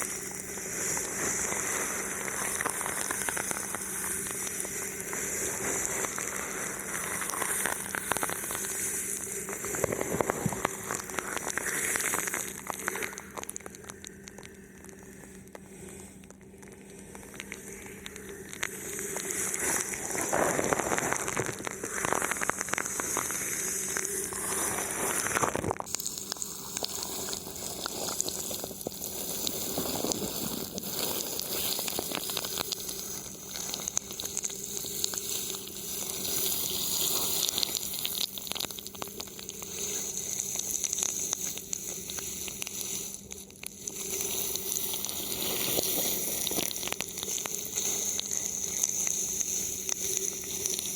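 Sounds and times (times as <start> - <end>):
plastic film crinkling on microphone: 0.8 - 50.9.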